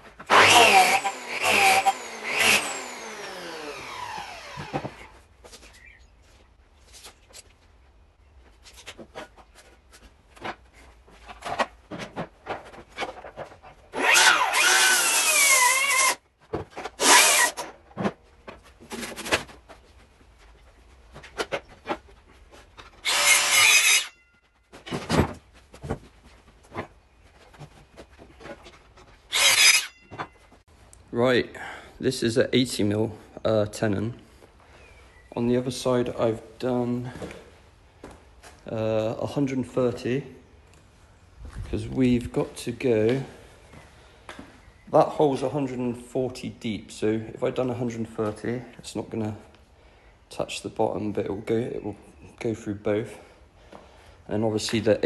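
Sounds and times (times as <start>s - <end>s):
power tool cutting wood: 0.3s - 5.2s, 13.9s - 16.2s, 17.0s - 17.6s, 23.0s - 24.2s, 29.3s - 30.0s
knocks of tools and timber: 4.1s - 5.7s, 16.4s - 19.8s.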